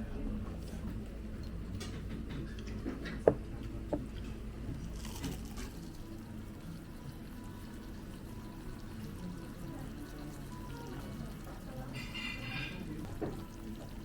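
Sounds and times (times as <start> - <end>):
tableware clinks: 12.0 - 12.8.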